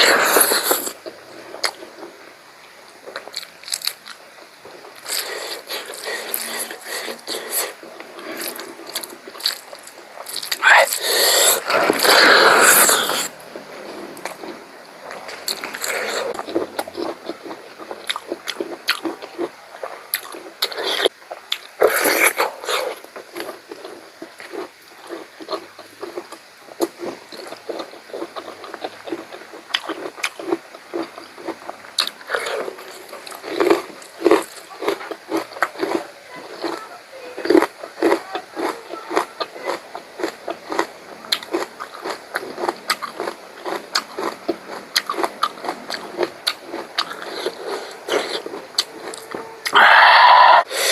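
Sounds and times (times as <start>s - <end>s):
wet chewing mouth sounds: 3.0s - 36.8s, 37.4s - 50.9s
rush of breath: 49.8s - 50.9s.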